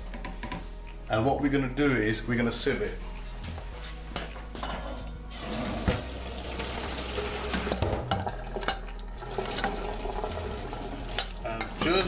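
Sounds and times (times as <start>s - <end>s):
pot knocking: 5.8s - 10.3s.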